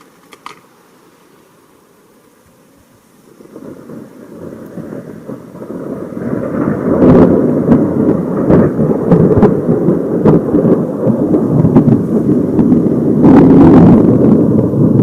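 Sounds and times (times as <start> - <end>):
loud close thunder rumbling: 3.2 - 15.0
sharp thunder crackles: 3.3 - 15.0.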